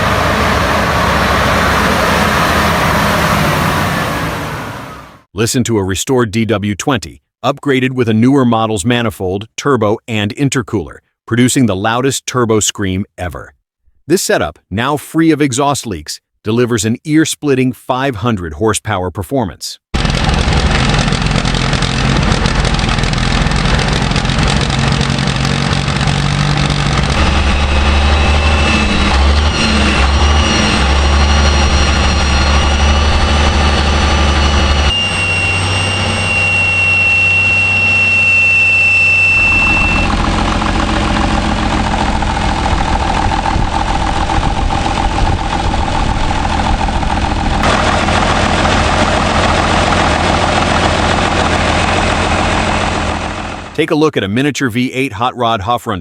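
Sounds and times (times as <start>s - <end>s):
diesel engine revving: 0.0s - 5.3s, 20.0s - 53.8s
high turbo whistle: 0.0s - 5.3s, 27.0s - 42.8s.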